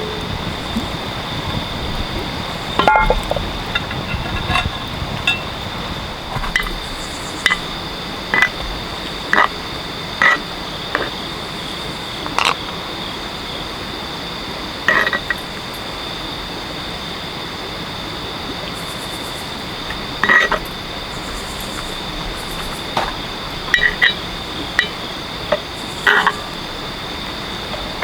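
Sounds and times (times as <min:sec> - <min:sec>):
high-pitched drone: 0:00.0 - 0:04.7
short clinking sounds: 0:02.8 - 0:05.5.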